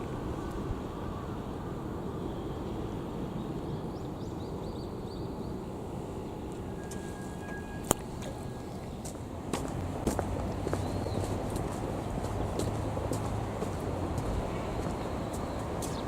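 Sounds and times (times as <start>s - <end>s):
city background rumble: 0.0s - 16.0s.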